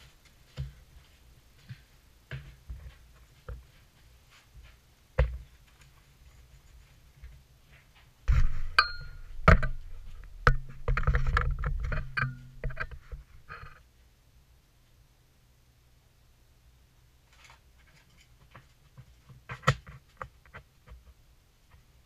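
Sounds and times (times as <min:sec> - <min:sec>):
ceramic tile knocking and clinking: 0:08.8 - 0:09.2.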